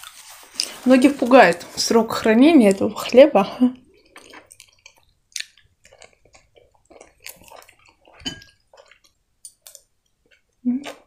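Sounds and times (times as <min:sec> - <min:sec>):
chewing with wet mouth clicks: 0:04.0 - 0:11.0
spoon clinking glass bowl: 0:08.2 - 0:08.6.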